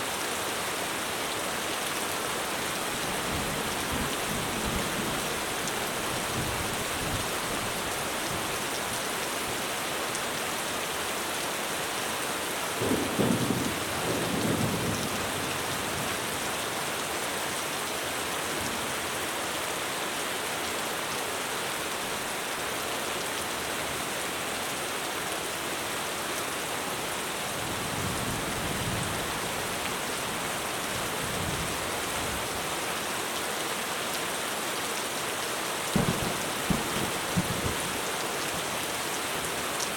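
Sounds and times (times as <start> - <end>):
heavy rain on a roof: 0.0 - 39.9
thunder rumbling: 36.0 - 38.1.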